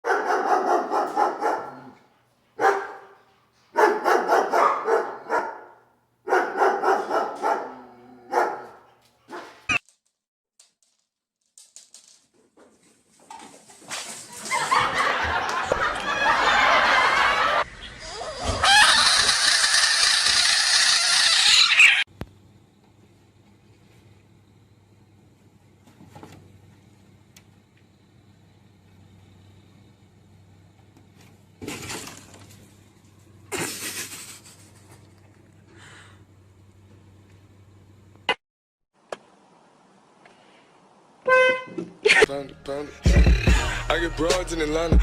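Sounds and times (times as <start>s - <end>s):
dog barking and yowling: 0.0s - 2.0s, 2.6s - 3.2s, 3.8s - 9.6s.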